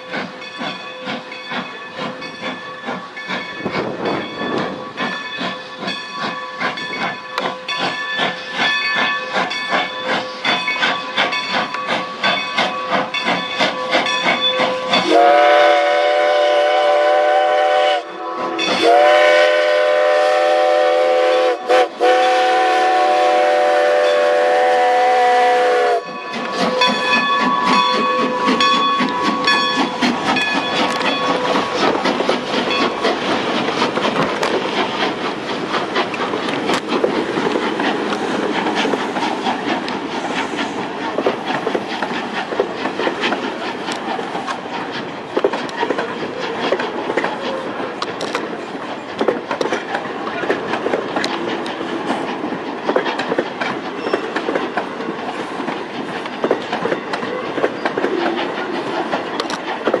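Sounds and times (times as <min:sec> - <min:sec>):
train wheels clicking over rail joints: 0:00.0 - 1:00.0
train whistle: 0:14.9 - 0:26.0.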